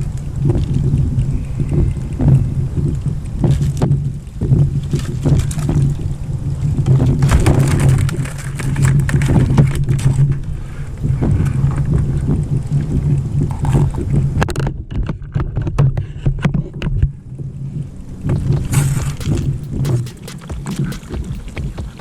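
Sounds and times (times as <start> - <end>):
water and wind noise: 0.0 - 22.0
paddle knocks and splashes: 6.8 - 10.2, 18.3 - 22.0
low hum: 17.1 - 22.0.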